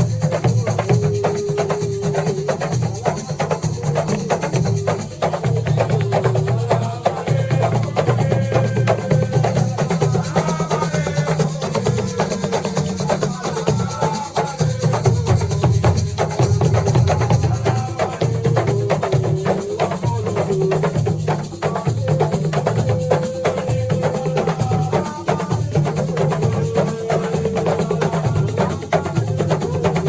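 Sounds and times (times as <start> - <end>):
clatter of struck percussion: 0.0 - 30.0.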